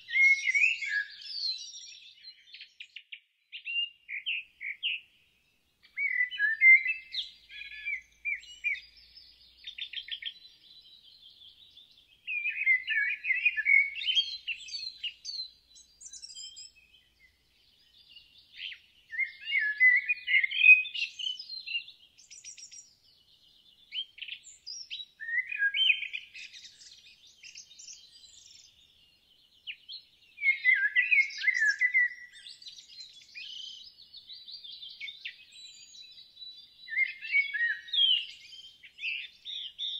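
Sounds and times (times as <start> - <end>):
high bird chirps and trills: 11.7 - 23.0, 29.6 - 39.9.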